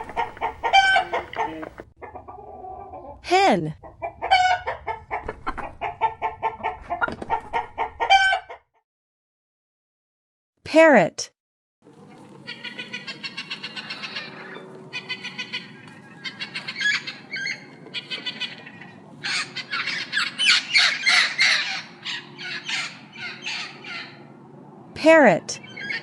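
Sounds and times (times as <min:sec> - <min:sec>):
parrot harsh calls: 0:00.2 - 0:01.8, 0:12.4 - 0:24.3.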